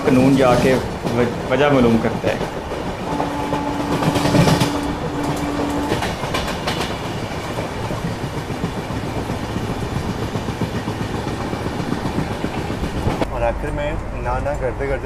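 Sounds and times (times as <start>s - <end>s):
train wheels clattering over joints: 0.0s - 14.8s.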